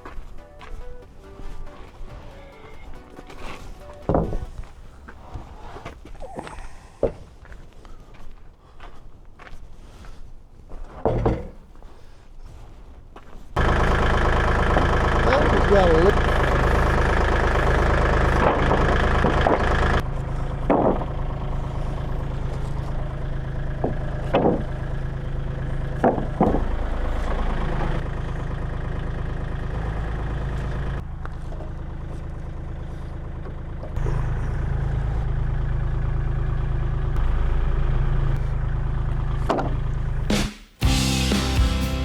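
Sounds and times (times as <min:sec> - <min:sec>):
engine idling: 0:00.0 - 0:07.5, 0:13.6 - 0:42.0
short knocks and clanks: 0:18.4 - 0:22.0, 0:22.6 - 0:28.1.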